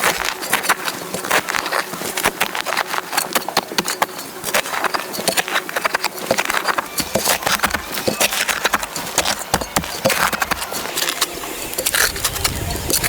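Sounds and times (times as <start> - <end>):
hard objects knocking: 3.3 - 13.0.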